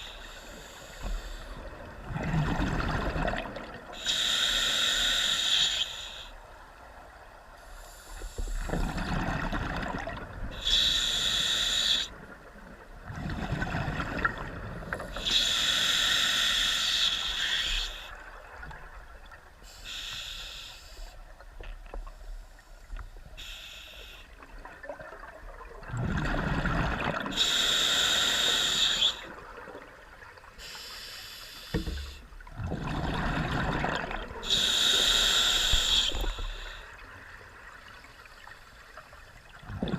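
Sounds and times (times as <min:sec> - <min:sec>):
rumbling exhaled bubbles: 0:01.9 - 0:03.9, 0:08.7 - 0:10.5, 0:13.0 - 0:15.1, 0:24.8 - 0:27.3, 0:32.5 - 0:34.5, 0:39.6 - 0:39.9
hissing regulator inhalations: 0:04.0 - 0:06.4, 0:10.6 - 0:12.1, 0:15.0 - 0:18.1, 0:19.6 - 0:21.2, 0:23.4 - 0:24.3, 0:27.3 - 0:29.3, 0:30.6 - 0:32.3, 0:34.4 - 0:37.0.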